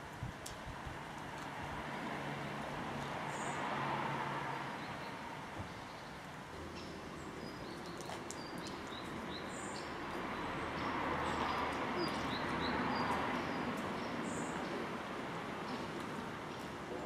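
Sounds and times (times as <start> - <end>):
outdoor background rush: 0.0 - 17.0
small birds chirping: 4.8 - 17.0.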